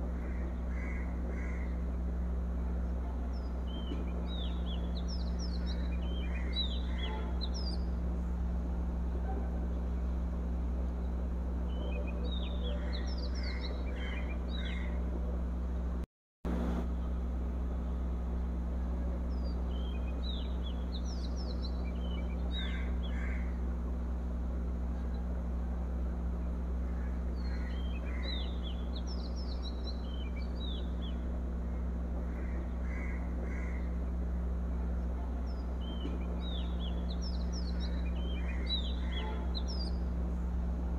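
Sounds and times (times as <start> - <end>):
steady low hum: 0.0 - 40.9
bird chirping: 2.9 - 8.0, 11.0 - 15.0, 19.3 - 23.5, 27.1 - 31.3, 35.4 - 40.2.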